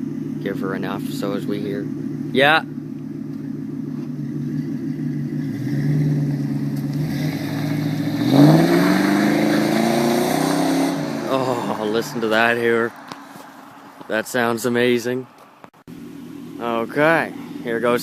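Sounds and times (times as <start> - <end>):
car exhaust revving: 0.0 - 18.0.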